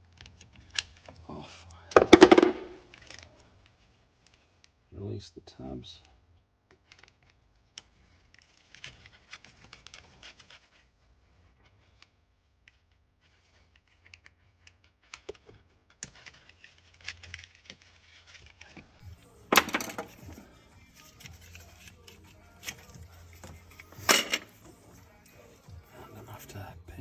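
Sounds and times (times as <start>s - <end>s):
scraping rustle: 19.9s - 25.7s.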